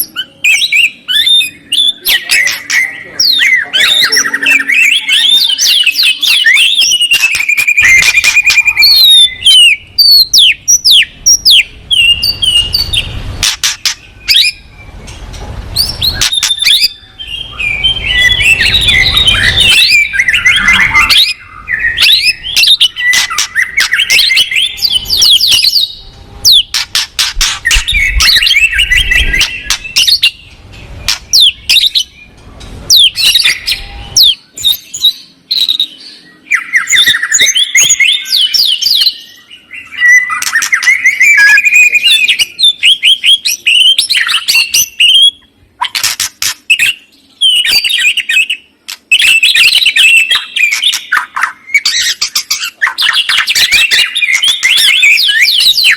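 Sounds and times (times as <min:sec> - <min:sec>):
songbird singing: 0:00.0 - 0:55.9.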